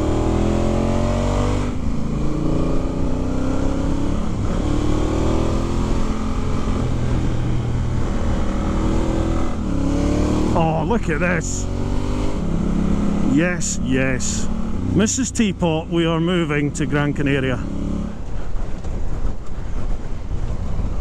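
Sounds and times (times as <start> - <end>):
motorcycle engine accelerating: 0.0 - 20.6
wind rush: 18.0 - 21.0.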